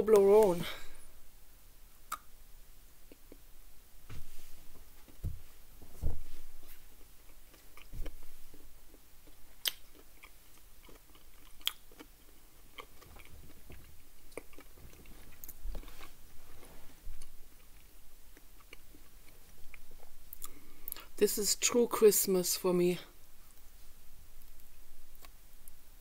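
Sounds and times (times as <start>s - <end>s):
chewing chocolate bar: 7.3s - 16.1s, 17.2s - 21.1s.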